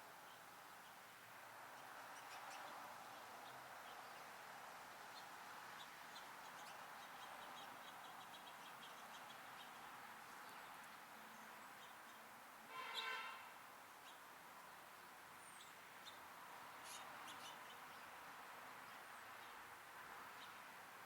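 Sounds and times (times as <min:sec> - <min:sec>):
steady background hiss: 0:00.0 - 0:12.8
songbirds chirping: 0:00.0 - 0:21.0.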